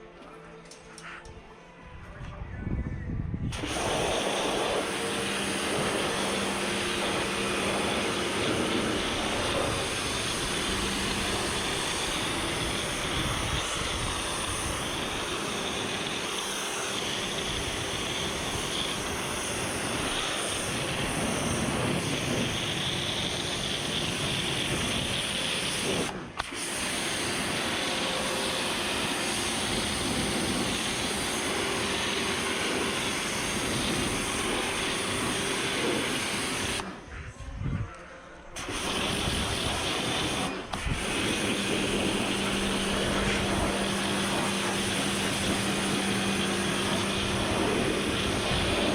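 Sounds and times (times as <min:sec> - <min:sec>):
pressure washer spraying: 0:03.5 - 0:37.0, 0:38.6 - 0:48.9.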